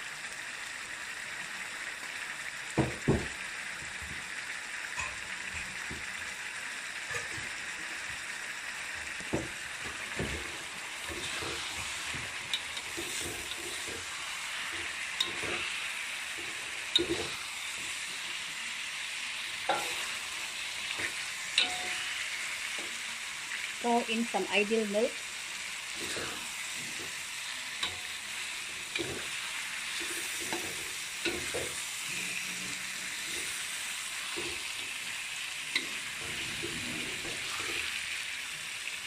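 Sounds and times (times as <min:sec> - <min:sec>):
food sizzling in hot oil: 0:00.0 - 0:39.0
spatula scraping and knocking pan: 0:09.3 - 0:18.4, 0:19.6 - 0:23.0, 0:26.0 - 0:38.0.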